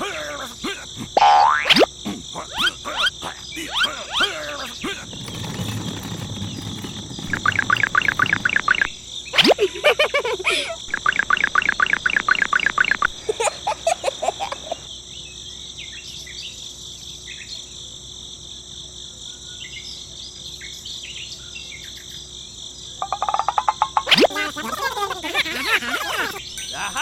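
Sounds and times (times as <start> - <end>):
crickets chirping chorus: 0.0 - 27.0
fast rattling insect calls: 0.1 - 15.8, 21.8 - 27.0.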